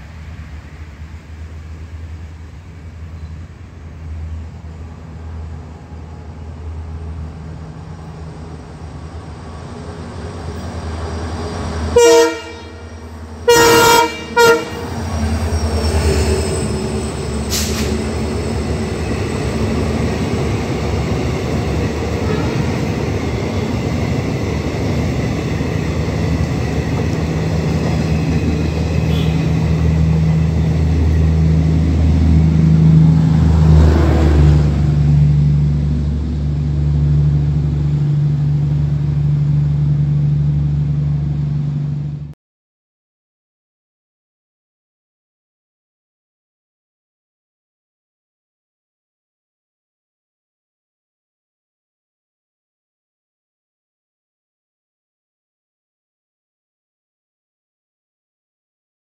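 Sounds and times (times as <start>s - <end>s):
locomotive horn blasts: 12.0s - 15.0s, 22.2s - 22.8s, 29.0s - 29.7s
low engine drone: 26.5s - 42.4s.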